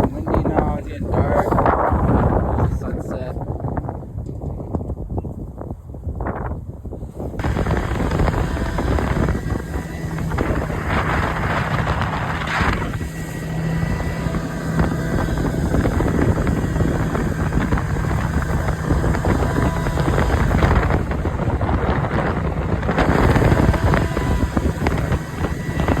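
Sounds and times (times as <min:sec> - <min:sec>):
wind buffeting microphone: 0:00.0 - 0:26.0
steady low hum: 0:07.3 - 0:26.0
motor running: 0:07.4 - 0:26.0.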